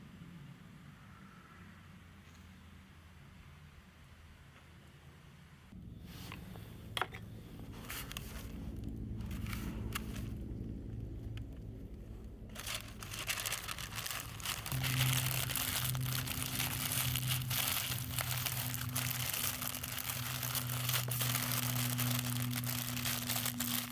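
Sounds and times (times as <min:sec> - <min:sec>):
steady low hum: 0:05.6 - 0:23.9
dense crackling and crinkling: 0:07.6 - 0:23.9.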